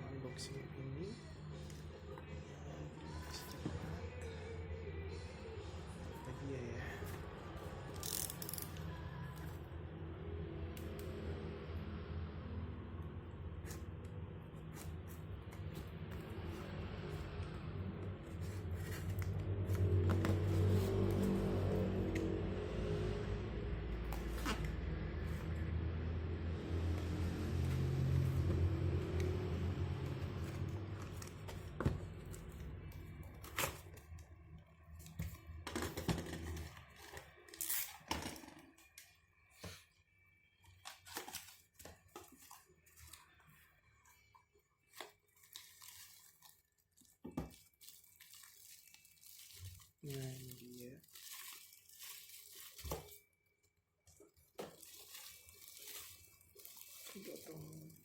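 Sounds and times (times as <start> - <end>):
packaging rustling and scraping: 18.3 - 22.0, 40.7 - 58.0.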